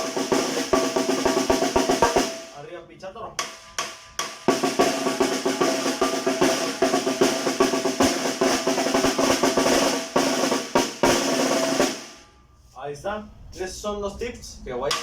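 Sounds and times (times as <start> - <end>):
snare drum rolls and hits: 3.4 - 12.1.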